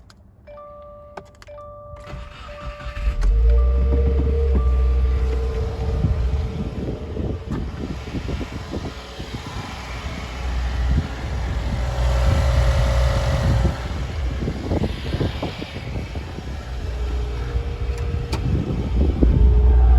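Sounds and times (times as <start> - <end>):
car engine idling: 2.1 - 19.9.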